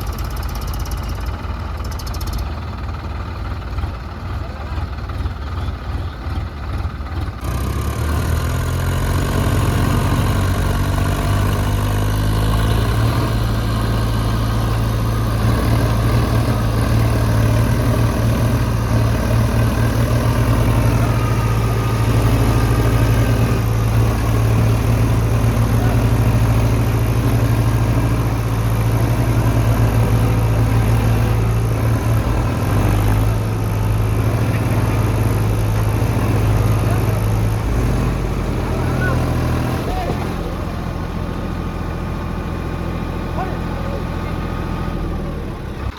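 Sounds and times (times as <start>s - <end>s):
diesel tractor engine running: 0.0s - 45.9s.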